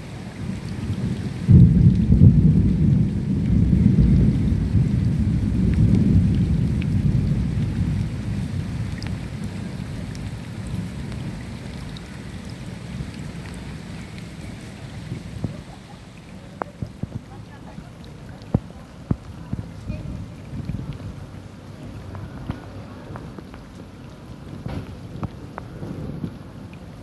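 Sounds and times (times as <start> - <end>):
rain falling: 0.0 - 27.0
water drips: 0.0 - 27.0
thunder rumbling: 0.3 - 27.0.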